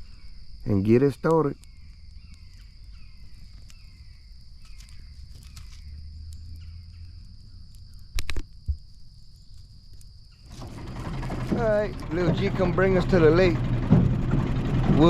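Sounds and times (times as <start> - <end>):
crickets chirping: 0.0 - 14.8
sharp clicks: 4.6 - 6.6, 7.7 - 8.8.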